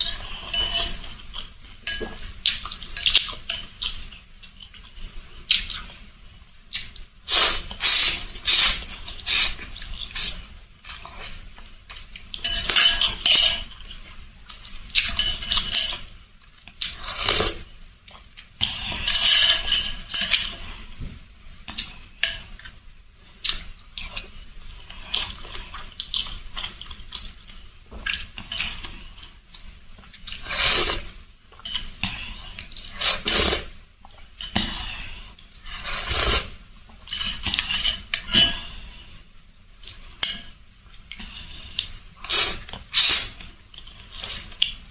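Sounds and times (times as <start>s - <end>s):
spoon and fork clinking on bowl: 0.0s - 1.1s, 12.4s - 13.7s
slurping and chewing: 6.7s - 21.0s, 21.6s - 39.1s, 41.0s - 44.8s.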